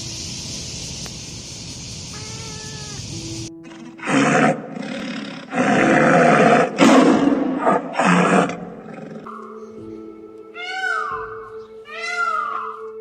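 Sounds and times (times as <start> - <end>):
big cat roaring: 3.7 - 9.3.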